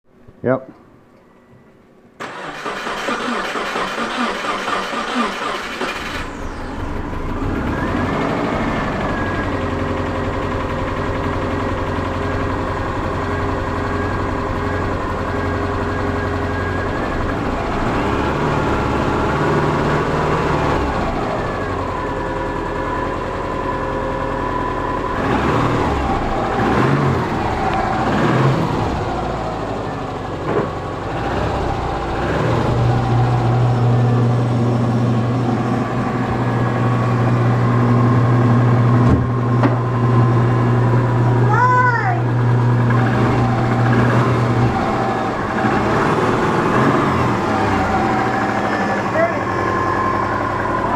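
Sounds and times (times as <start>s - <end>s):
car engine idling roughly: 2.2s - 18.0s, 47.5s - 50.9s.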